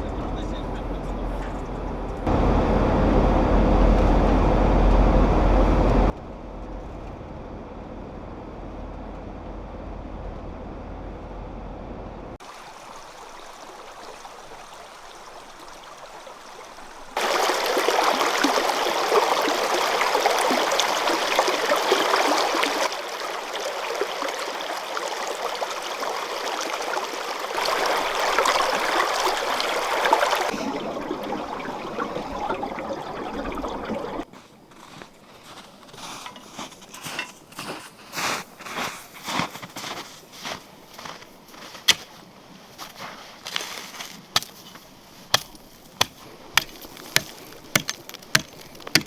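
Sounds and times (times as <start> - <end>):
mountain stream rushing: 12.4 - 35.6, 45.5 - 49.0.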